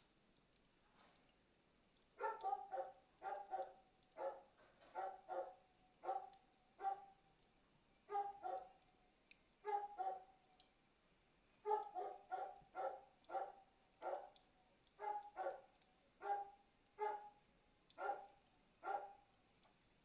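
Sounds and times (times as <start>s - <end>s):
dog barking: 2.2s - 7.2s, 8.1s - 8.8s, 9.6s - 10.4s, 11.6s - 14.4s, 15.0s - 17.4s, 18.0s - 19.3s.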